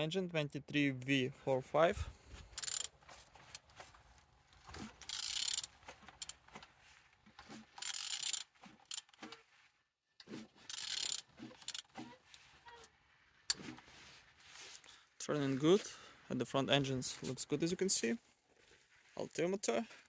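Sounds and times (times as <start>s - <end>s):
ratchet wrench clicking: 2.6s - 2.9s, 5.0s - 6.4s, 7.8s - 9.2s, 10.6s - 11.9s.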